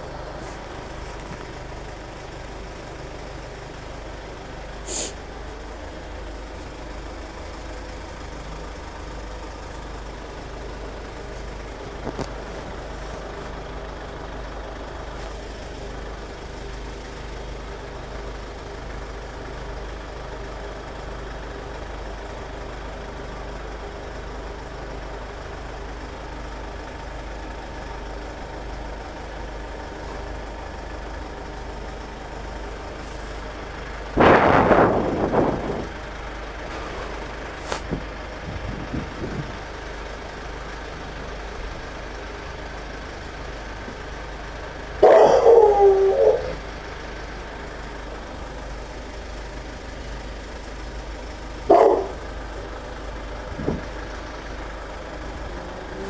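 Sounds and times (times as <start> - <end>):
vehicle engine idling: 0.0 - 56.0
short sharp hiss: 4.9 - 5.2.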